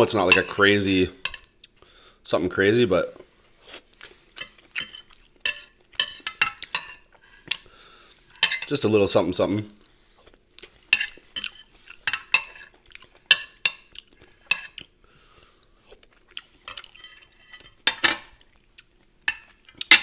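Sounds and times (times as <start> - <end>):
fork scraping against a plate: 3.7 - 7.6, 10.9 - 14.8, 16.6 - 18.3.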